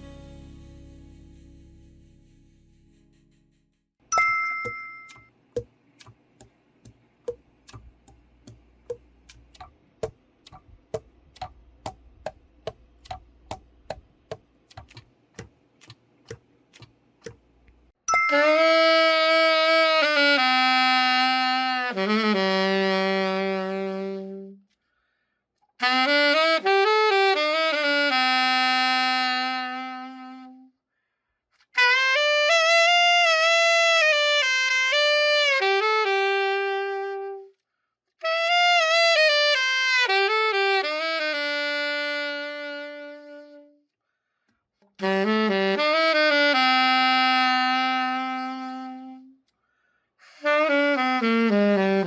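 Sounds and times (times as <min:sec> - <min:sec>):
alto saxophone playing solo: 0:18.3 - 0:24.6, 0:25.8 - 0:30.7, 0:31.7 - 0:37.6, 0:38.2 - 0:43.8, 0:45.0 - 0:49.4, 0:50.2 - 0:52.0.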